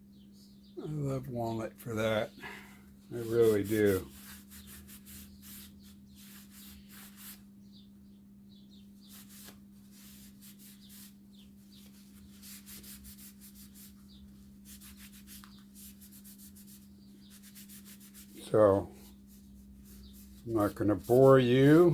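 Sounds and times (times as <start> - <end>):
cloth wiping wood: 3.1 - 7.4, 11.8 - 21.9.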